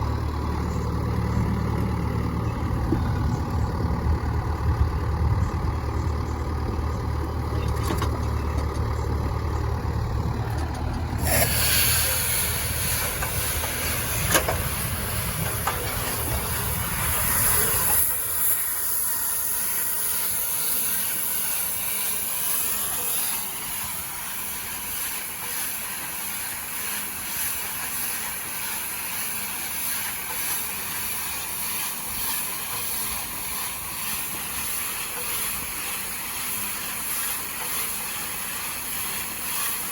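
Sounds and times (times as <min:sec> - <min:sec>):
tractor engine humming: 0:00.0 - 0:39.9
steady hiss: 0:11.2 - 0:39.9.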